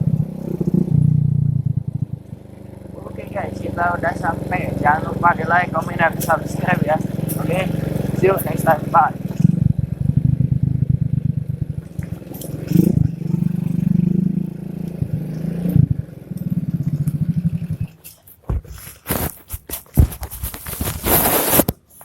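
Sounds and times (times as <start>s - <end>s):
motorcycle engine revving: 0.0s - 22.0s
rustling and scraping: 18.0s - 22.0s.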